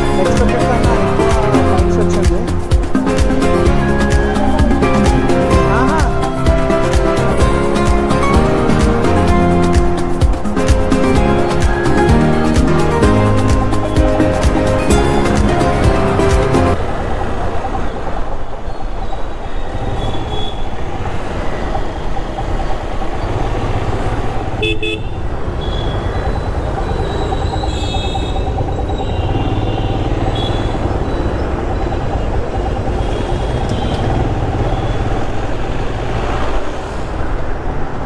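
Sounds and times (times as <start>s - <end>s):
traffic engine rumble: 0.0s - 38.0s
vehicle horn toots: 24.5s - 26.1s, 27.0s - 31.2s, 33.0s - 35.4s.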